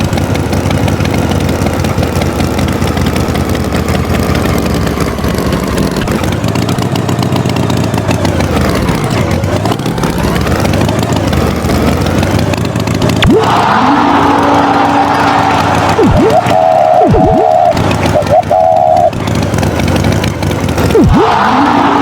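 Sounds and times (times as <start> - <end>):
engine running: 0.0 - 22.0
rising whistle-like sweep: 13.2 - 19.1.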